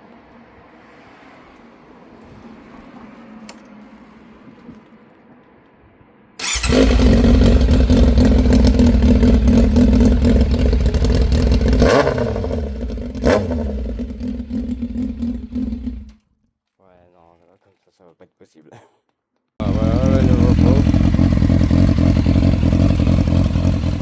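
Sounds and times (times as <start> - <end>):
motorcycle engine idling: 6.4 - 16.1, 19.6 - 24.0
motorcycle throttle blips: 6.4 - 16.2, 19.6 - 24.0.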